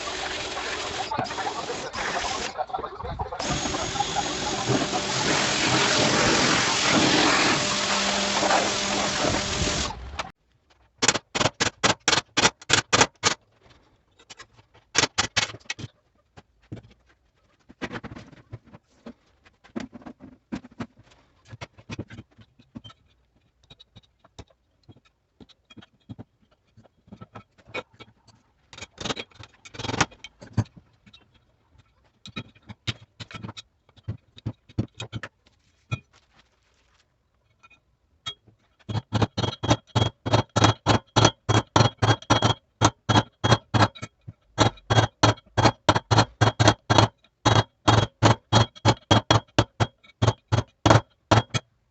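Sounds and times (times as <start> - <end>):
metal clicks and knocks: 37.5 - 51.8.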